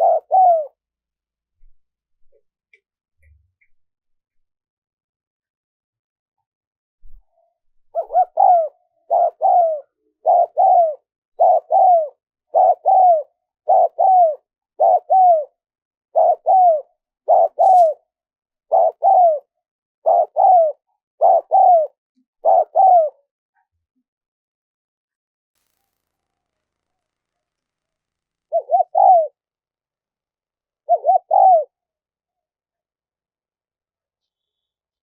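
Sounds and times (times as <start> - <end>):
dove cooing: 0.0 - 0.8, 7.9 - 18.0, 18.7 - 23.2, 28.5 - 29.4, 30.8 - 31.8.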